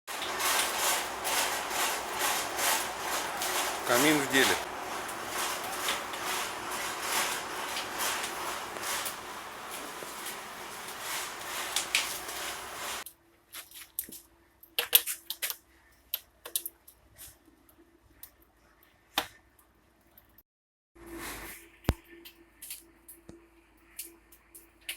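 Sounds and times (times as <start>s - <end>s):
burning wood crackling and popping: 0.1s - 15.6s
fire rushing hiss: 0.3s - 13.0s.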